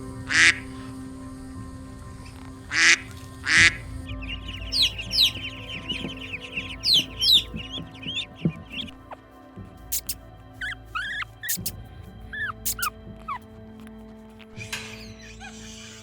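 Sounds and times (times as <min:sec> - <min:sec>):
background music: 0:00.0 - 0:16.0
chicks harsh calls: 0:00.2 - 0:00.9, 0:02.7 - 0:09.2, 0:09.9 - 0:11.8, 0:12.4 - 0:13.4, 0:14.6 - 0:16.0
chicks peeping: 0:00.3 - 0:00.9, 0:02.7 - 0:09.2, 0:09.9 - 0:11.7, 0:12.4 - 0:13.4.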